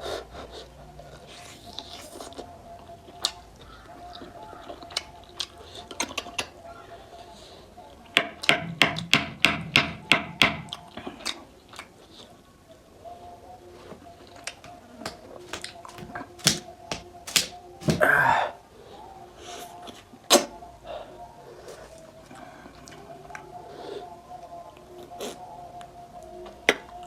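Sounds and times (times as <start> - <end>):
chewing: 0.1 - 6.7, 10.7 - 12.8, 13.7 - 18.3, 21.5 - 27.0.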